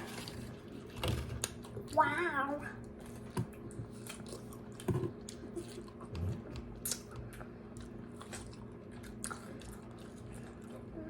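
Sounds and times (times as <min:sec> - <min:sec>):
low steady hum: 0:00.0 - 0:11.0
person chewing strawberries: 0:02.8 - 0:11.0.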